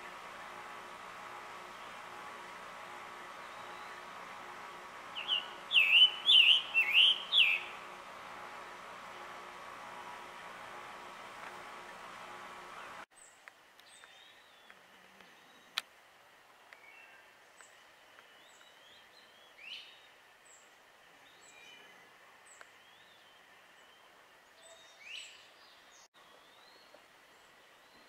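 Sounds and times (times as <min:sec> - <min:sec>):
songbirds chirping: 0:00.0 - 0:15.9, 0:16.6 - 0:28.0
rising whistled bird calls: 0:03.4 - 0:04.1, 0:05.1 - 0:07.8.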